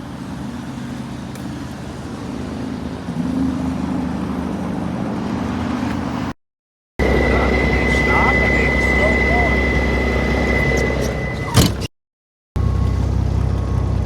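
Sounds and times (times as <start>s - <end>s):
diesel truck engine revving: 0.0s - 6.4s, 7.0s - 11.8s.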